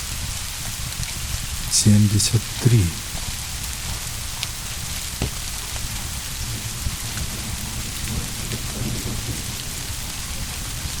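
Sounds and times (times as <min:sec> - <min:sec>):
steady rain: 0:00.0 - 0:11.0
distant thunder rumble: 0:02.4 - 0:11.0.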